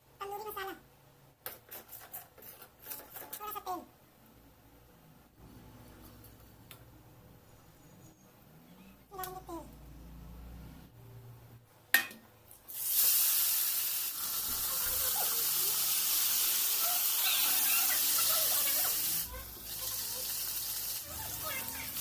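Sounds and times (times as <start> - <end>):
loud steady hiss: 12.6 - 22.0.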